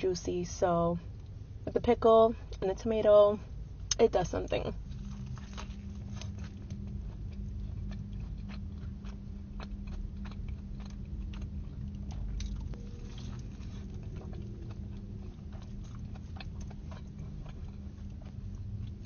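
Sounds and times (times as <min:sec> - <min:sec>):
chewing food: 0:04.8 - 0:19.0.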